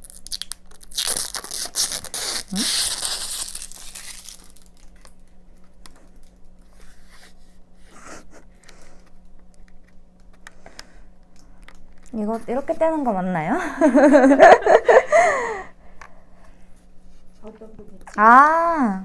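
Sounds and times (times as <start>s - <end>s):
plastic film tearing and crinkling: 0.0s - 5.3s
plastic film crackles and clicks: 0.0s - 6.6s, 11.2s - 12.2s.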